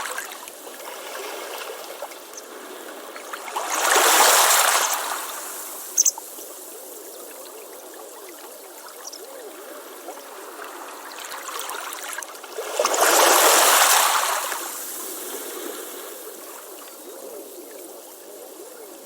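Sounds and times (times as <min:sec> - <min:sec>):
ocean waves washing on beach: 0:00.0 - 0:06.1, 0:09.5 - 0:17.0.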